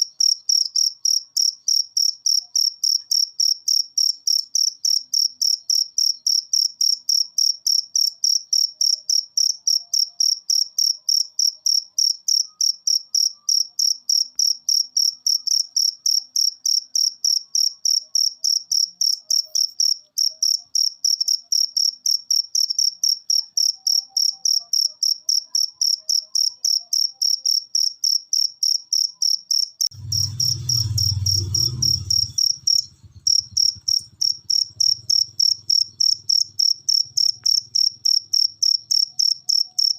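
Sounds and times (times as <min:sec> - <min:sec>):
cricket chirping: 0:00.0 - 0:39.9
low rumble: 0:29.9 - 0:37.8.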